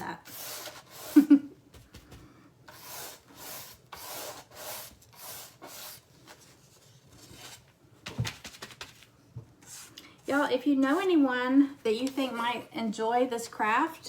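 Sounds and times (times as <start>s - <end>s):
dry brush scratching on wood: 2.7s - 6.0s.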